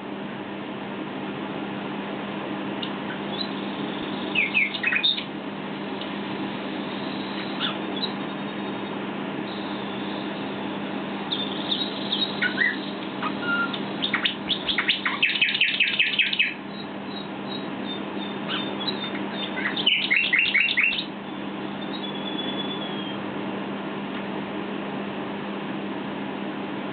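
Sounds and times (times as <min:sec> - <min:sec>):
nightingale singing: 0:02.8 - 0:23.3.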